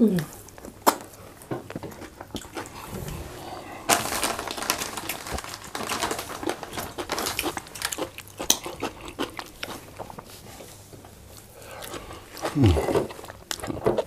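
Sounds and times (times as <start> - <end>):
wet chewing and lip-smacking: 6.8 - 10.3, 11.3 - 14.0.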